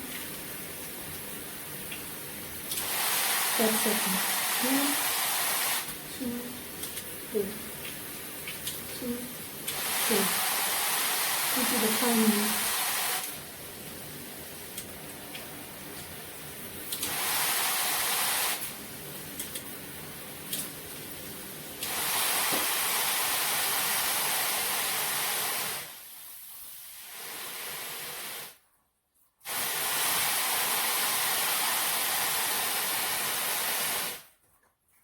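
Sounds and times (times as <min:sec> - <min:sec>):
shower head spraying water: 0:00.0 - 0:28.6, 0:29.4 - 0:34.3.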